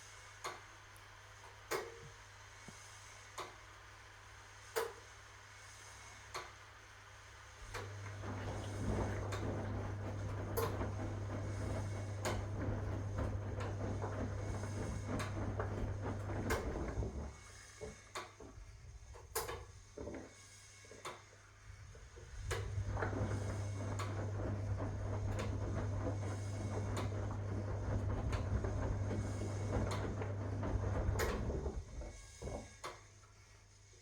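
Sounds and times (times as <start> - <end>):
washing machine hum: 0.0 - 34.0
washing machine drum churning: 7.7 - 17.4, 22.3 - 33.0.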